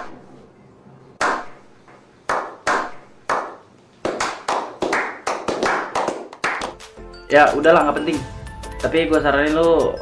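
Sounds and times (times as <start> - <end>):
hand claps with echo: 2.3 - 6.9.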